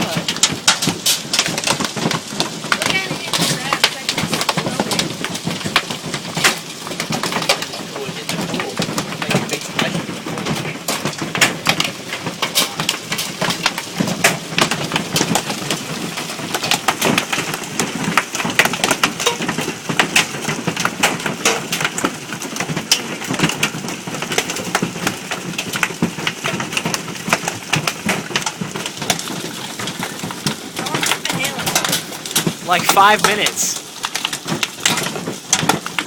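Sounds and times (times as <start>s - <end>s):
hail pelting hard surfaces: 0.0s - 36.0s.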